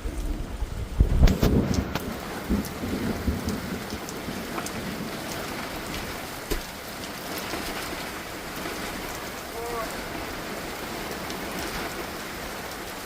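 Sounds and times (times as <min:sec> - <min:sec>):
heavy rain pattering: 0:00.0 - 0:13.0
dull knock: 0:06.5 - 0:06.7.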